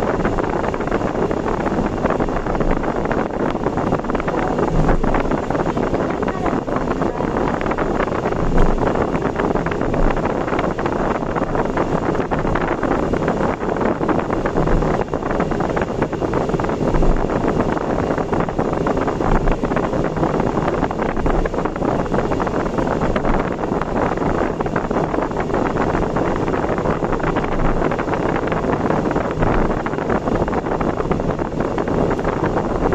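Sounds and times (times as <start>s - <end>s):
vehicle road and wind noise: 0.0s - 32.9s
wind buffeting microphone: 0.0s - 32.9s.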